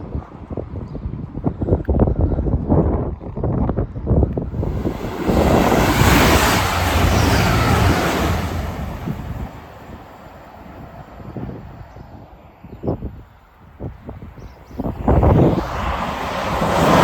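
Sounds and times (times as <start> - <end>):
wind buffeting microphone: 0.0 - 17.0
train passing with rumble: 4.5 - 12.5, 14.8 - 17.0.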